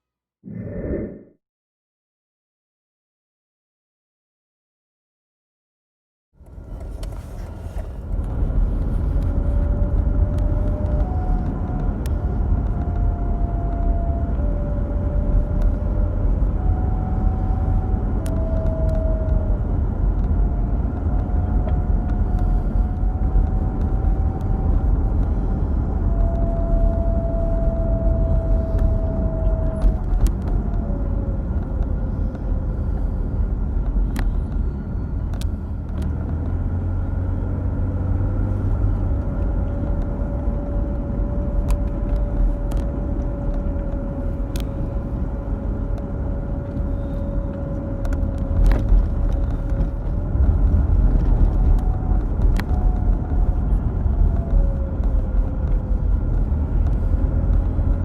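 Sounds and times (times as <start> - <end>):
car drone with thin whistle: 21.3 - 35.9, 38.2 - 58.0.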